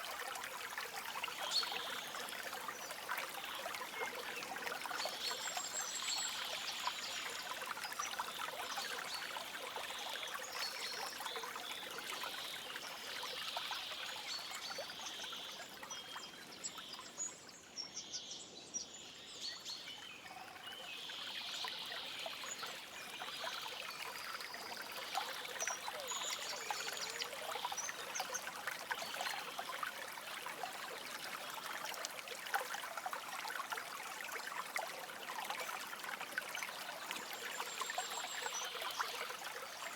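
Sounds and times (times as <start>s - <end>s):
stream babbling: 20.1s - 39.9s.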